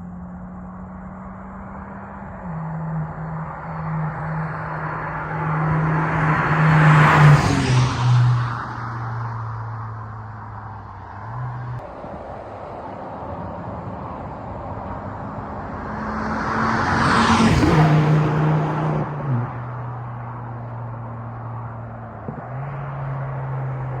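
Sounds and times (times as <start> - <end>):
car driving past: 1.7 - 10.0, 15.2 - 24.0.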